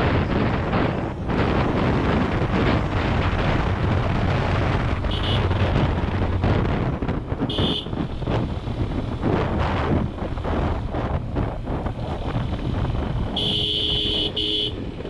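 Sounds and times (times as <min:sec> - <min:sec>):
motorcycle running: 0:00.0 - 0:15.0
wind buffeting microphone: 0:00.0 - 0:15.0
horn beeps: 0:05.1 - 0:05.6, 0:07.5 - 0:07.9, 0:13.4 - 0:14.8.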